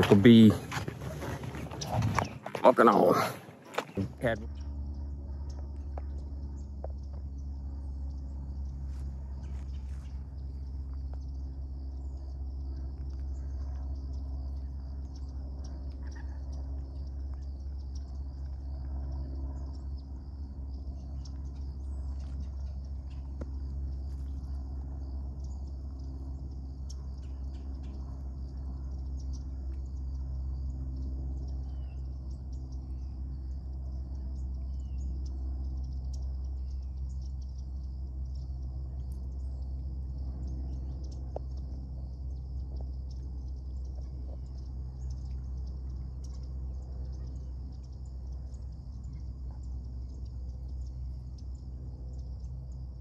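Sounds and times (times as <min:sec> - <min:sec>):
low rumble: 0:00.0 - 0:53.0
small birds chirping: 0:00.0 - 0:53.0.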